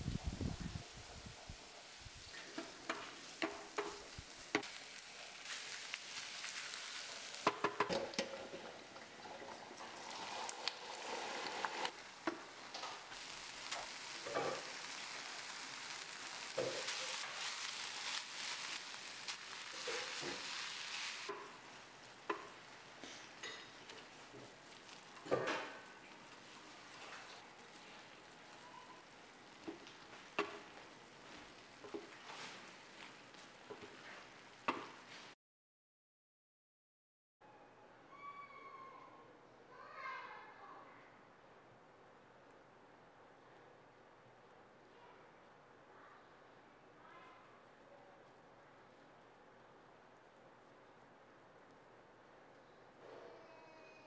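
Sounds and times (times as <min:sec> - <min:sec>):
food sizzling in oil: 0:00.0 - 0:35.4
wooden spoon scraping pan: 0:10.0 - 0:12.0.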